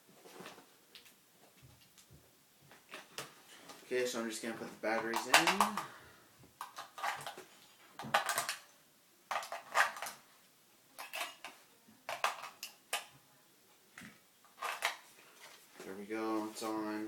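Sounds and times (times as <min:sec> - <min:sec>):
batteries rattling and clicking: 0:04.9 - 0:06.0, 0:06.6 - 0:08.7, 0:09.3 - 0:10.2, 0:11.0 - 0:13.1, 0:14.0 - 0:15.6
plastic clinking and snapping: 0:05.0 - 0:06.0, 0:06.6 - 0:08.7, 0:09.3 - 0:10.2, 0:11.0 - 0:13.2, 0:14.0 - 0:15.1.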